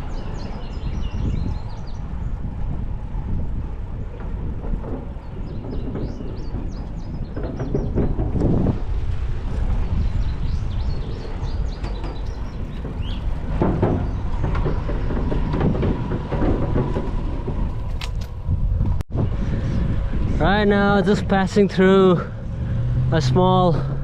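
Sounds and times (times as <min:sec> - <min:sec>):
bicycle tyres rolling on pavement: 0:00.0 - 0:24.0
wind buffeting microphone: 0:00.0 - 0:24.0
bird chirps: 0:09.8 - 0:13.3.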